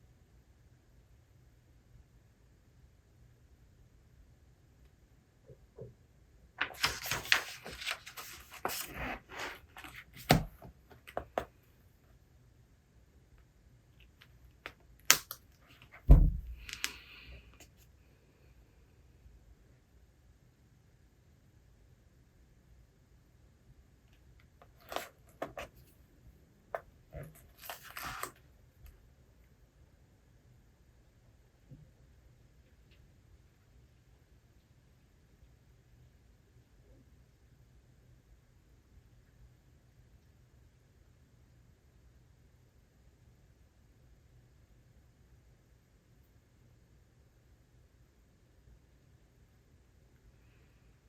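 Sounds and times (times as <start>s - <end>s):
rustling on desk: 6.6s - 11.5s, 27.2s - 28.4s.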